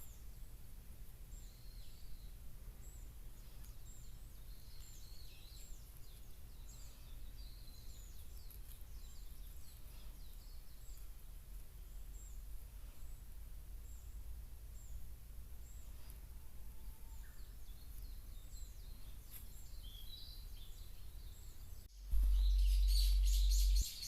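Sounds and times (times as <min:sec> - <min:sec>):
small birds chirping: 0:00.0 - 0:24.0
steady low rumble: 0:21.8 - 0:24.0.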